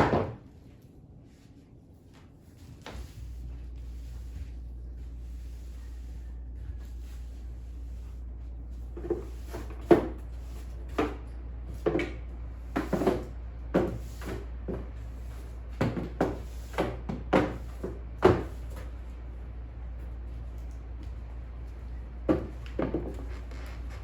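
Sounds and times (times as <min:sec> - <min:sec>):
knocks of household objects: 0:00.0 - 0:00.4
low steady hum: 0:00.0 - 0:24.0.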